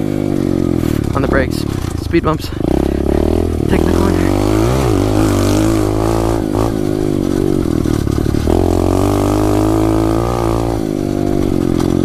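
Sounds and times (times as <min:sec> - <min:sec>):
pit bike engine running hard: 0:00.0 - 0:12.0.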